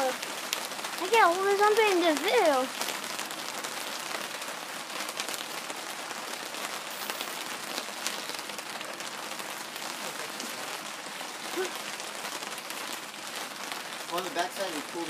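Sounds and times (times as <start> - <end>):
rain drops tapping: 0.0 - 15.0.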